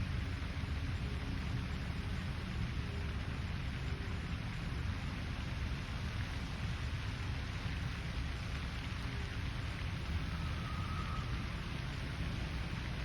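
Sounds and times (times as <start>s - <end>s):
rain-like hiss: 0.0s - 13.0s
faint whistle: 10.1s - 11.8s.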